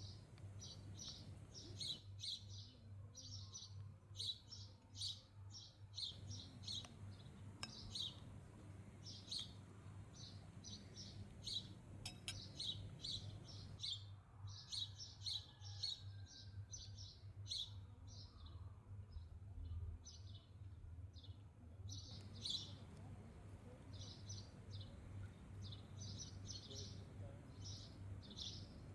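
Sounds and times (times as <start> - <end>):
small birds chirping: 0.0 - 15.2, 16.8 - 28.9
steady low hum: 6.1 - 13.9.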